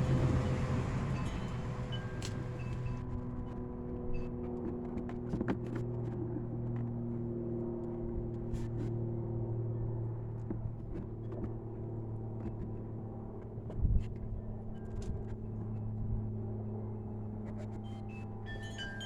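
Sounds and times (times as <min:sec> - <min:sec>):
car mechanical hum: 0:00.0 - 0:03.0.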